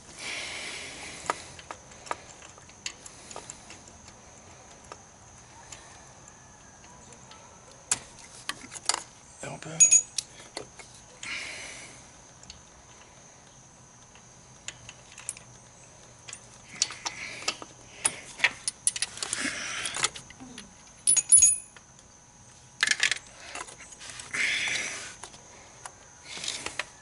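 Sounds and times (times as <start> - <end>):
metal hand tools clinking: 9.7 - 10.2, 21.0 - 21.7.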